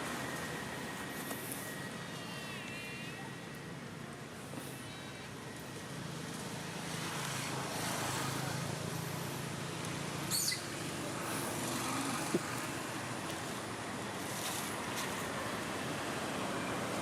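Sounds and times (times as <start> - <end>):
low outdoor hum: 0.0 - 17.0
brief high squeak: 10.3 - 10.7.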